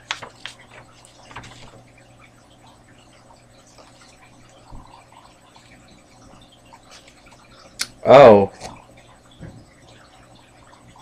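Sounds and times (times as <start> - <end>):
paper rustling and clicks: 0.0 - 1.8
low electrical hum: 0.0 - 11.0.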